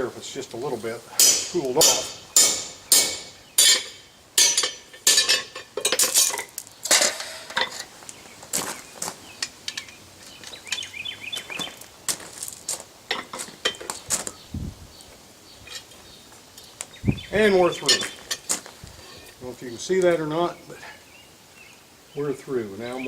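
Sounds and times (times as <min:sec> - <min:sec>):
hammer striking hole punch on steel: 0:01.2 - 0:05.2.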